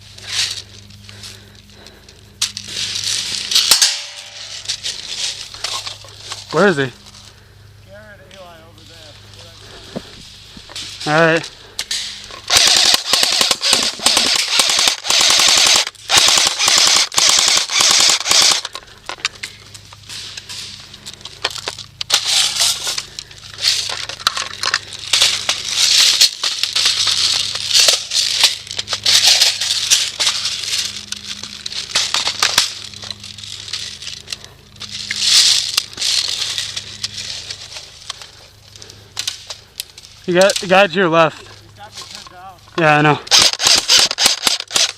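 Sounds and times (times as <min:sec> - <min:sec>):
airsoft guns firing bursts: 0:12.5 - 0:18.7, 0:43.3 - 0:44.9.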